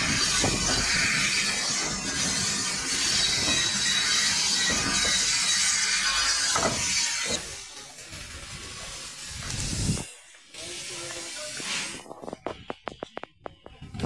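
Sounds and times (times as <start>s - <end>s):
train carriage rumble: 0.0s - 5.3s
steady hiss: 7.4s - 12.7s.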